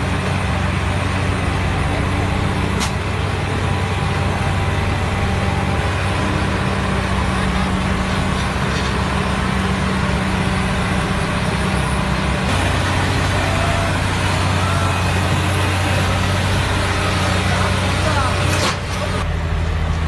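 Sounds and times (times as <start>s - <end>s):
heavy vehicle engine running: 0.0s - 20.0s.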